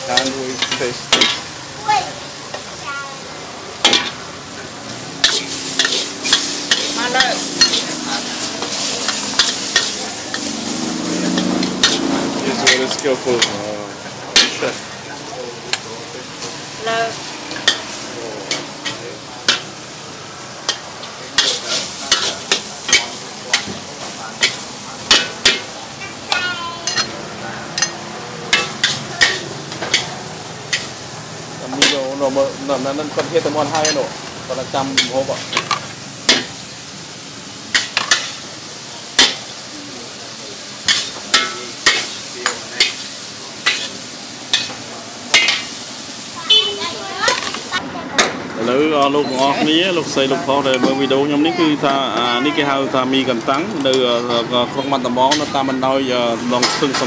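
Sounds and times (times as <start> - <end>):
food sizzling in a pan: 0.0 - 57.0
metal spatula clanking on pan: 0.1 - 1.5, 3.8 - 4.2, 5.2 - 8.0, 8.6 - 10.5, 11.3 - 13.6, 14.3 - 14.7, 17.5 - 19.7, 20.6 - 30.1, 31.7 - 32.1, 33.7 - 34.1, 34.9 - 36.6, 37.7 - 38.4, 39.2 - 39.5, 40.8 - 45.8, 55.3 - 55.6
metal spatula scraping a wok: 5.1 - 13.6, 16.4 - 19.7, 20.6 - 23.7.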